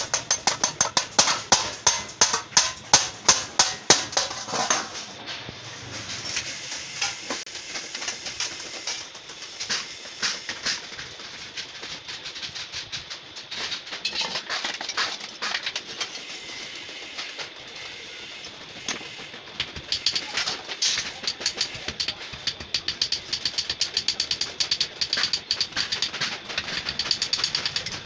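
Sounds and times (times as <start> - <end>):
hand tools tapping sheet metal: 0.0 - 5.3, 19.6 - 28.0.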